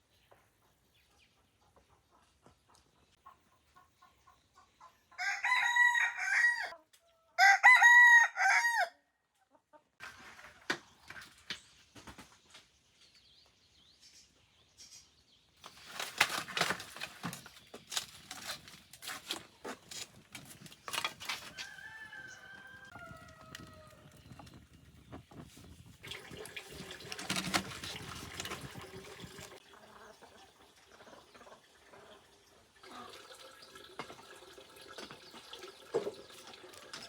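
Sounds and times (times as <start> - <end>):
rooster crowing: 5.2 - 6.7, 7.4 - 9.0, 21.5 - 24.0.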